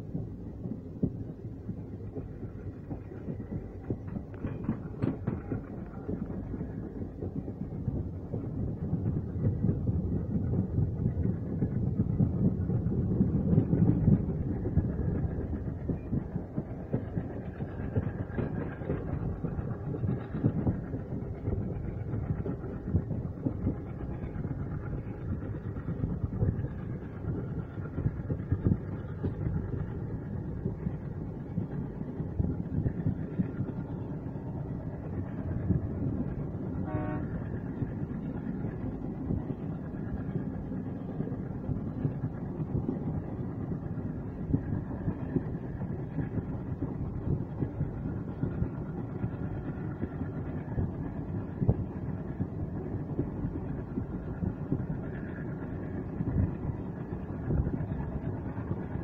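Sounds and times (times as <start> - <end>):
train rumbling: 0.0 - 59.0
wheels clattering over track: 0.0 - 59.0
train horn toot: 36.8 - 37.5.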